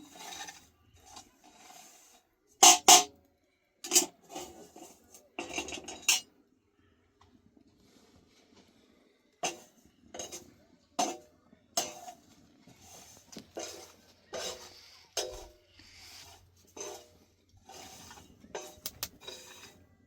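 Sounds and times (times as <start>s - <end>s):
metal utensil clinking on pot: 0.0s - 3.1s, 3.8s - 6.3s, 9.4s - 11.2s, 11.8s - 15.6s, 16.2s - 19.8s.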